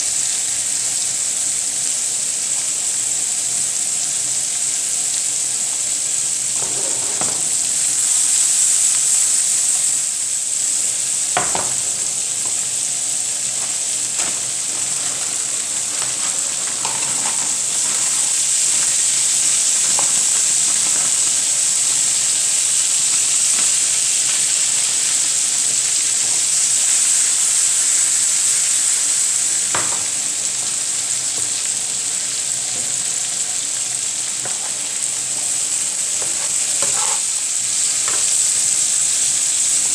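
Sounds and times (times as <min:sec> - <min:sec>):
food sizzling in pan: 0:00.0 - 0:39.9
utensil clicking against pan: 0:11.4 - 0:26.0, 0:34.4 - 0:38.4.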